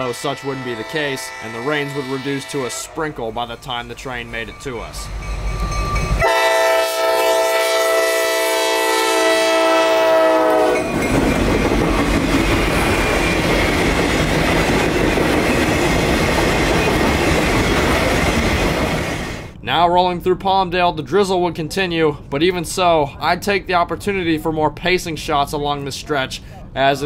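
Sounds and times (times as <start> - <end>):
locomotive air horn blast: 0.0 - 3.4, 6.2 - 10.9
train rumble and wheel clatter: 0.0 - 19.6.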